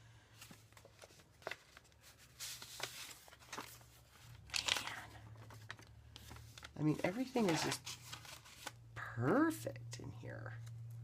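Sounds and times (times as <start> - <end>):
paper rustling and crinkling: 0.3 - 8.9.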